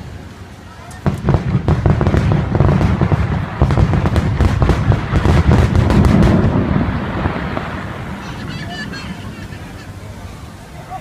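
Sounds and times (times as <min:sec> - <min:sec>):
fireworks cracking and popping: 0:00.1 - 0:10.2
low booming rumble: 0:01.0 - 0:08.6.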